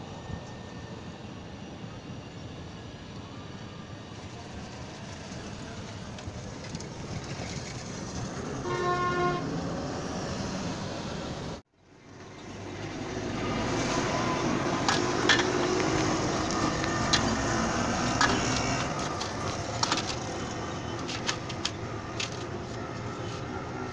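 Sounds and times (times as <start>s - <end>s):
background traffic noise: 0.0s - 23.9s
vehicle horn blast: 8.6s - 9.5s.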